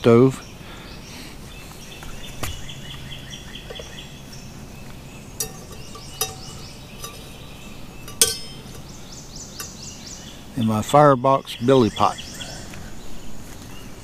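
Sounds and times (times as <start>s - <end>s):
birds chirping: 0.0s - 14.0s
metal pot clinking: 5.3s - 9.8s.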